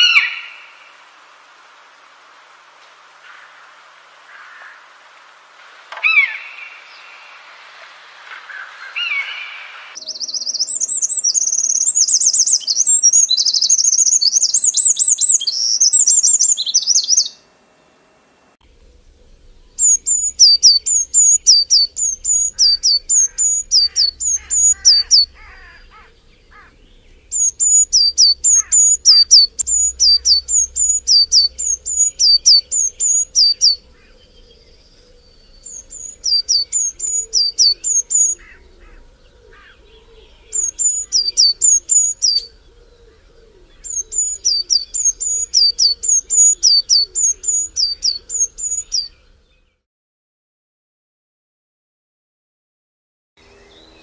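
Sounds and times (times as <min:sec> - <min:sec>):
bird calling with sharp notes: 0:00.0 - 0:01.0, 0:05.9 - 0:07.5, 0:08.3 - 0:17.5, 0:18.7 - 0:49.7
faint lower bird calls: 0:00.0 - 0:01.2, 0:05.9 - 0:07.7, 0:08.3 - 0:17.5, 0:18.7 - 0:49.8.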